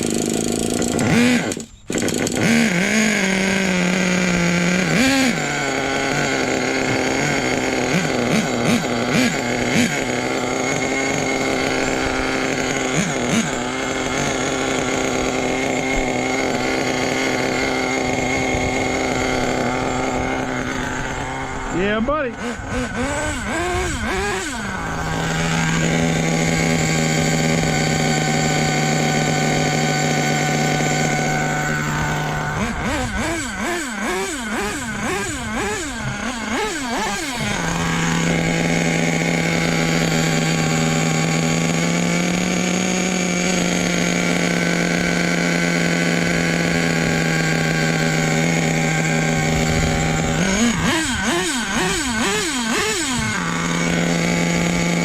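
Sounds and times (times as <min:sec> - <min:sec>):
small model engine revving: 0:00.0 - 0:55.0.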